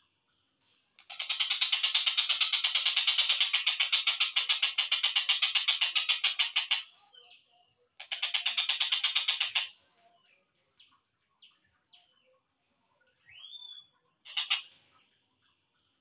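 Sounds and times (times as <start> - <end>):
bird rattling call: 1.0 - 6.9, 8.0 - 9.7, 14.3 - 14.7.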